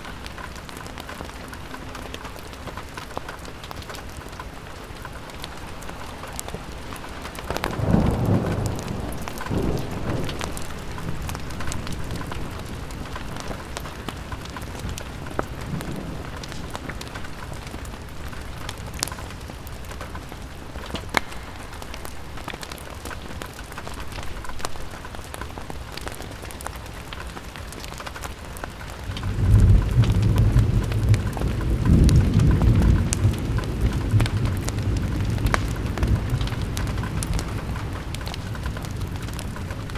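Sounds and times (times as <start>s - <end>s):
fireplace crackles: 0.0s - 39.9s
rain pattering on window: 0.0s - 39.9s
thunder rumbling: 4.8s - 24.4s, 28.6s - 39.9s.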